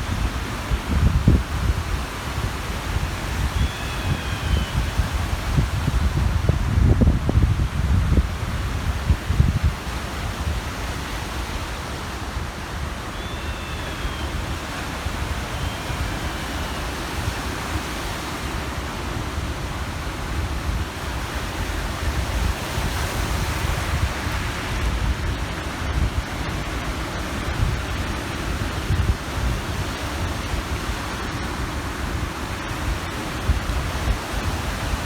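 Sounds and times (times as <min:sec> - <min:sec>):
wind buffeting microphone: 0:00.0 - 0:13.1, 0:14.2 - 0:35.0
waves washing onto shore: 0:00.0 - 0:35.0
faint short bird call: 0:13.1 - 0:14.4.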